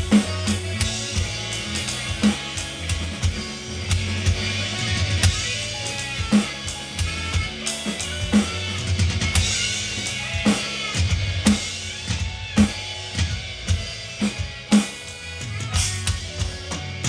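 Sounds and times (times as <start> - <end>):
snare hits: 0.0 - 13.3
low bass line: 0.0 - 14.6
ringing cymbals: 0.0 - 17.0.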